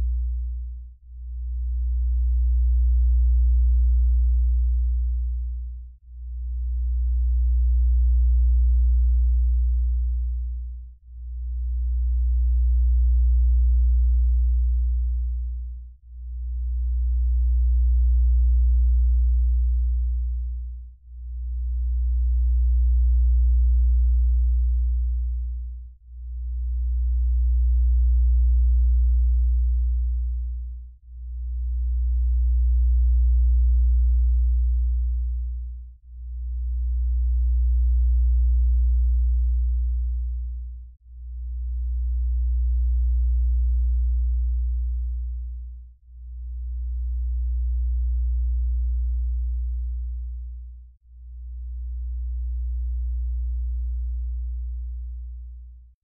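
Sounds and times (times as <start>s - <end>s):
deep pulsing electronic tone: 16.3s - 55.7s.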